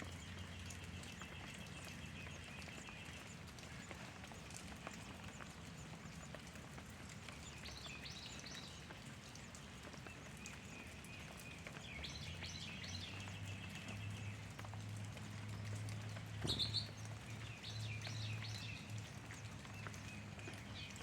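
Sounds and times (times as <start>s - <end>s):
faint small bird chirps: 16.4s - 17.0s.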